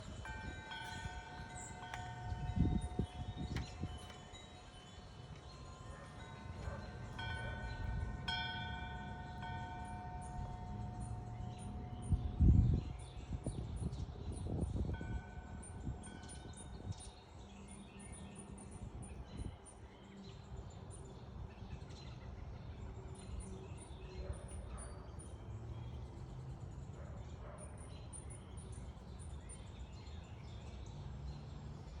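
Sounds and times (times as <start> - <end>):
wind on microphone: 0.0 - 8.4, 10.3 - 17.2, 18.8 - 19.7.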